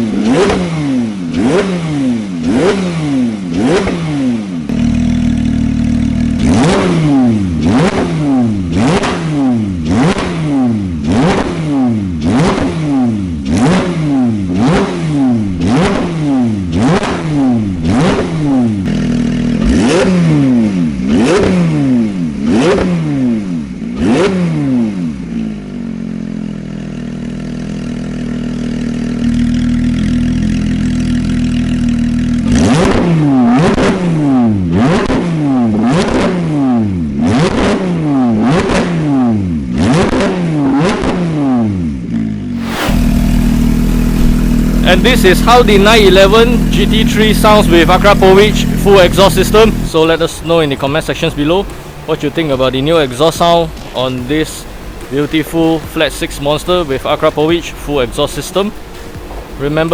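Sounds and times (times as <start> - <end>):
car engine revving in sharp blips: 0.0 - 59.9
car engine idling: 4.7 - 6.8, 42.6 - 59.9.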